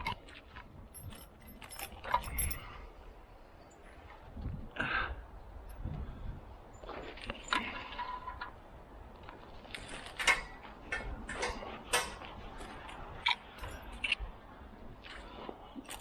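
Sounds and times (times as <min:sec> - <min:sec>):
metal climbing hardware clinking: 0:00.0 - 0:02.9, 0:09.9 - 0:14.2, 0:15.8 - 0:16.0
wind rumble on microphone: 0:00.0 - 0:16.0.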